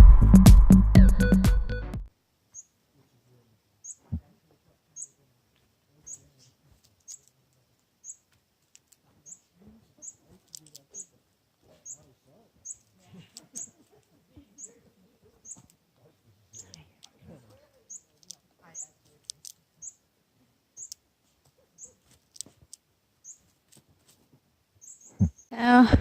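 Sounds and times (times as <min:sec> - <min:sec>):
small bird chirping: 0:02.5 - 0:02.8, 0:03.8 - 0:04.2, 0:04.9 - 0:05.3, 0:05.9 - 0:23.6, 0:24.7 - 0:25.6
faint rustling: 0:20.9 - 0:25.3.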